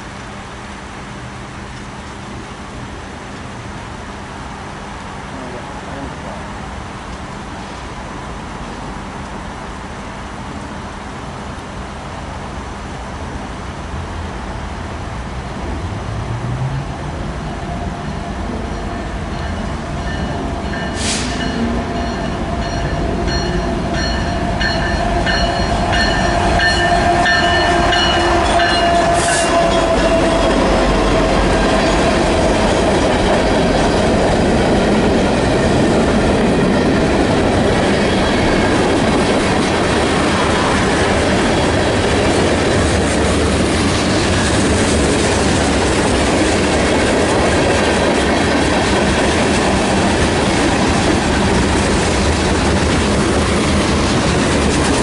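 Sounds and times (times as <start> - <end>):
diesel locomotive engine with whine: 0.0 - 55.0
freight cars rumbling and clattering: 14.0 - 55.0.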